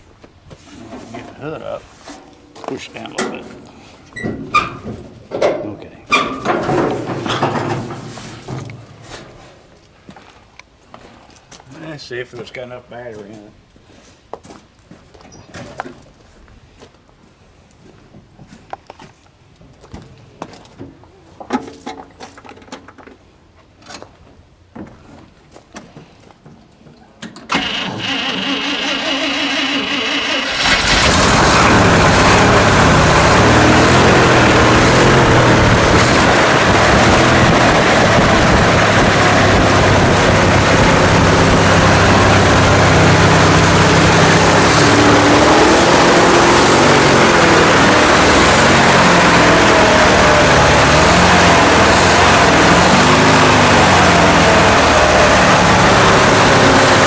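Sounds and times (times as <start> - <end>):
truck starter cranking: 27.4 - 38.3
truck engine running: 27.5 - 57.0.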